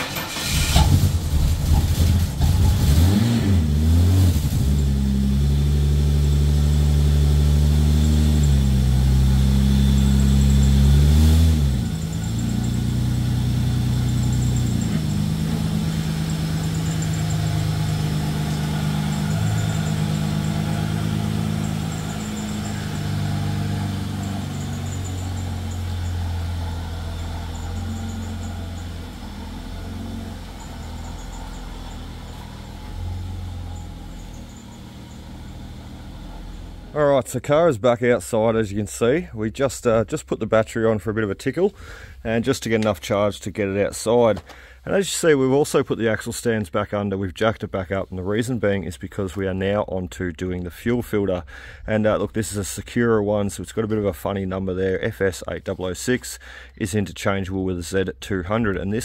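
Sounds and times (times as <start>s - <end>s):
car engine idling: 0.0s - 37.2s.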